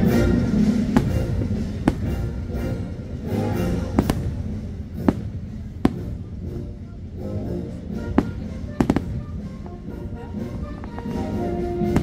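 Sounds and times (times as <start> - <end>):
firework shells bursting: 0.0 - 6.5, 7.8 - 12.0
fireworks show music: 0.0 - 12.0.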